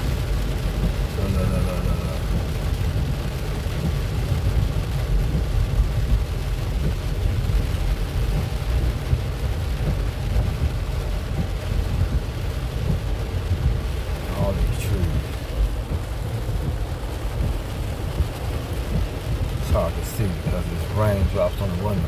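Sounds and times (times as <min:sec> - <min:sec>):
car engine and tyres rumbling: 0:00.0 - 0:22.0
rain on car: 0:00.0 - 0:22.0.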